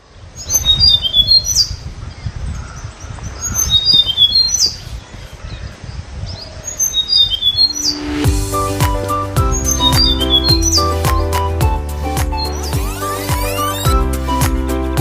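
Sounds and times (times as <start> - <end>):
bird chirping and whistling: 6.4 - 15.0.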